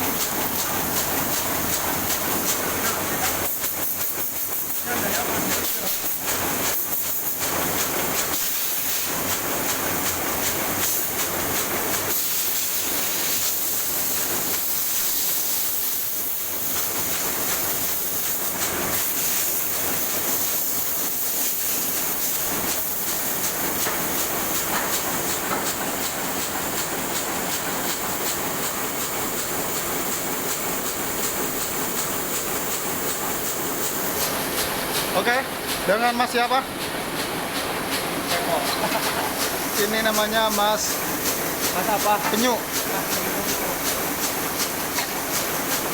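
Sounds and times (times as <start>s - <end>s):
printing press clattering: 0.0s - 8.4s, 22.0s - 45.9s.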